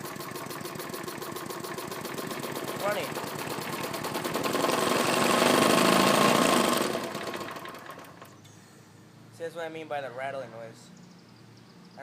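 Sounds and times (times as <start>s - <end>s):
lawn mower engine rattling: 0.0s - 8.4s.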